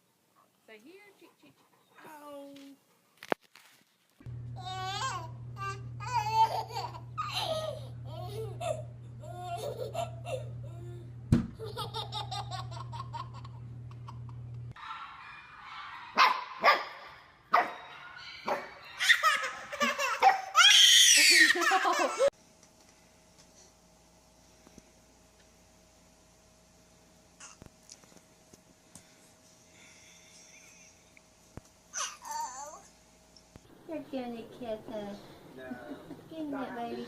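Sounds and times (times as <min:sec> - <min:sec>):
baby laughing and babbling: 0:04.6 - 0:14.3, 0:31.9 - 0:32.9.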